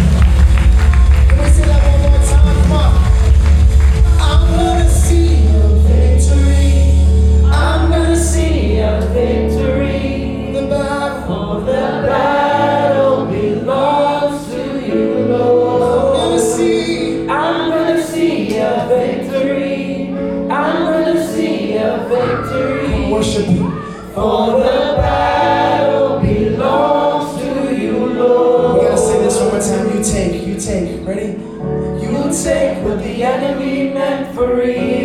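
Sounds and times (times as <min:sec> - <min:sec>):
group singing with band: 0:04.8 - 0:30.4.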